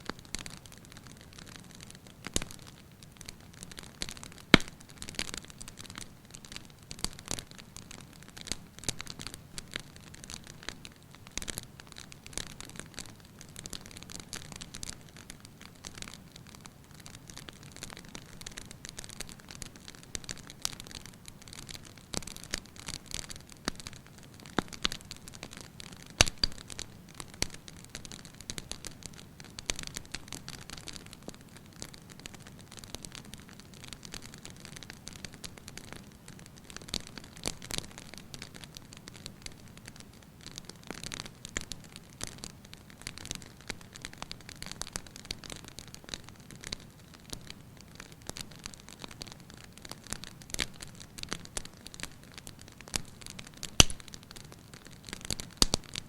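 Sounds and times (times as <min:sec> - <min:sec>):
sharp pops and snaps: 0:00.0 - 0:12.8, 0:24.5 - 0:31.1, 0:49.8 - 0:56.0
wood fire crackling: 0:00.0 - 0:56.0.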